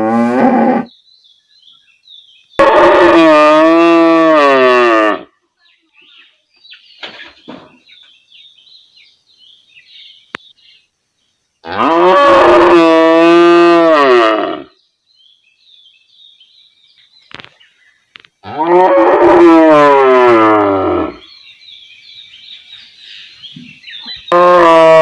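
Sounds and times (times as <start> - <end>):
cow mooing: 2.6 - 5.2, 11.6 - 14.7, 24.3 - 25.0.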